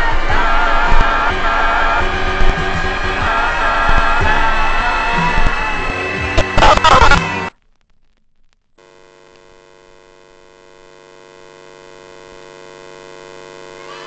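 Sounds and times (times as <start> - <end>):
television electrical hum: 0.0 - 7.3, 8.1 - 14.0
loud music: 0.0 - 7.5.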